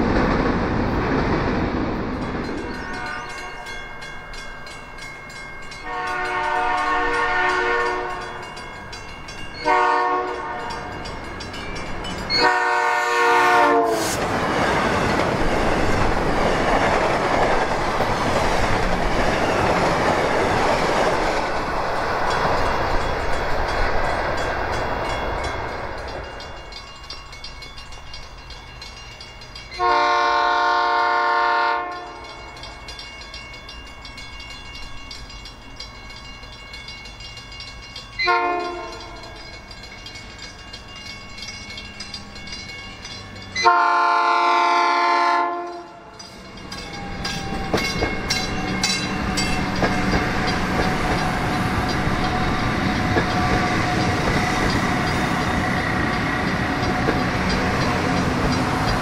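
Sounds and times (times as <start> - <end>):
train passing rush: 0.0 - 59.0
train horn blasts: 2.8 - 3.8, 5.8 - 8.5, 9.6 - 11.0, 12.3 - 14.2, 29.8 - 32.4, 38.2 - 39.3, 43.6 - 46.0.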